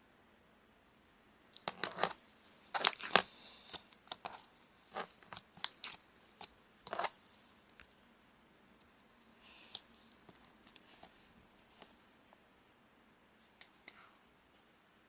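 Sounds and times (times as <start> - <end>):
slime crackling and popping: 1.5 - 7.9.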